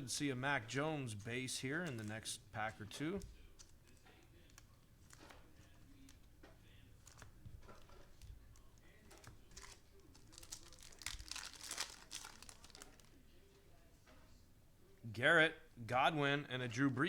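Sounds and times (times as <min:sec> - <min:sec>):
trading cards clicking and rustling: 0:01.0 - 0:13.1
foil wrapper crinkling: 0:01.2 - 0:06.3, 0:07.0 - 0:13.2.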